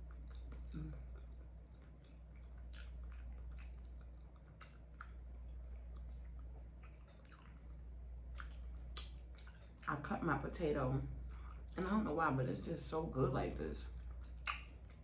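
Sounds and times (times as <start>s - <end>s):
mouth chewing sounds: 0.0s - 10.0s, 13.9s - 15.0s
steady low hum: 0.0s - 15.0s.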